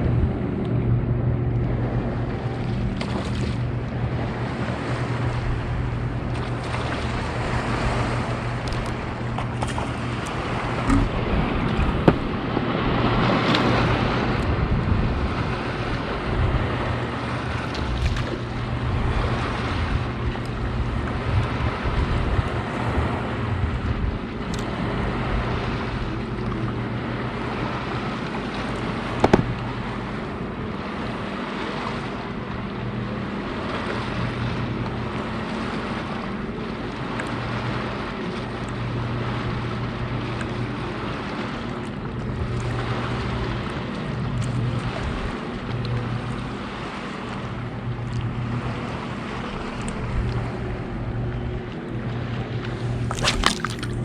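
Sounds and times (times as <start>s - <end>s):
boat motor humming: 0.0s - 54.0s
water noise: 0.0s - 54.0s
wind: 0.0s - 54.0s
sharp knocks: 10.8s - 12.3s, 29.2s - 29.6s.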